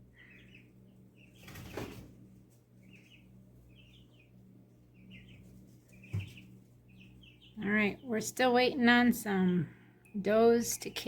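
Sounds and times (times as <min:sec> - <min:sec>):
small bird chirps: 0:00.0 - 0:02.1, 0:02.8 - 0:08.4.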